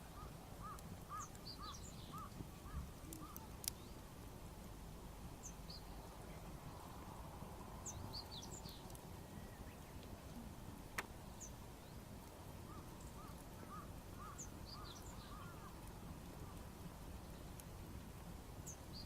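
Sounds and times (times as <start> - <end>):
bird calls: 0.1 - 4.0, 12.6 - 16.6
small bird chirps: 0.2 - 4.0.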